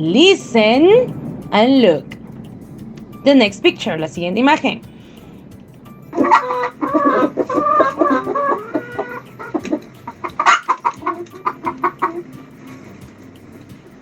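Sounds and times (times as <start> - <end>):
hen clucking: 6.1 - 12.4.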